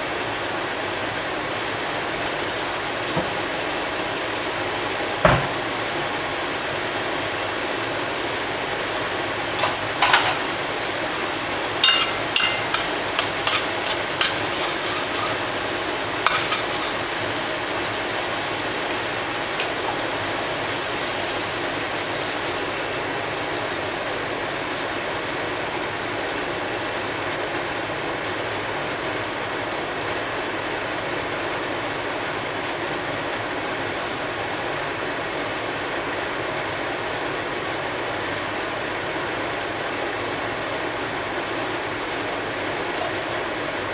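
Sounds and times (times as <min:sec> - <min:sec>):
food sizzling in a pan: 0:00.1 - 0:26.4
metal utensil scraping a pan: 0:09.6 - 0:10.6, 0:11.8 - 0:17.4.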